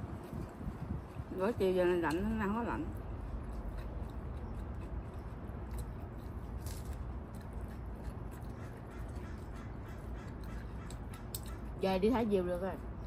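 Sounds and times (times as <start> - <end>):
crunchy chewing: 2.0 - 11.8.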